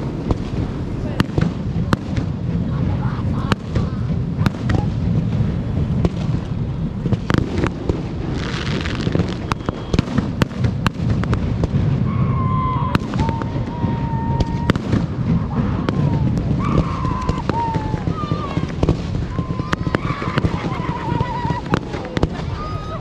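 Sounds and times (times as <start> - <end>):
crackling firework shower: 0.0 - 23.0
fireworks bursts and cracks: 0.0 - 23.0
low rumble: 0.0 - 23.0
wavering high whistle: 9.4 - 10.0.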